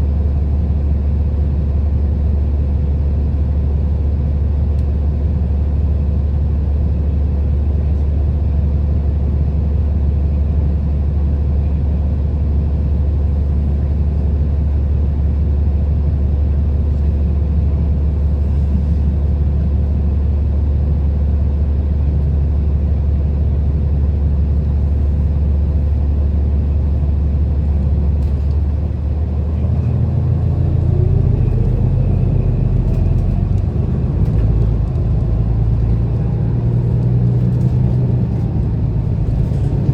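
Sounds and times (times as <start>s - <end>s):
bus engine drone: 0.0s - 39.9s
road noise: 12.9s - 20.4s, 24.0s - 39.9s
rising engine whine: 25.5s - 39.9s.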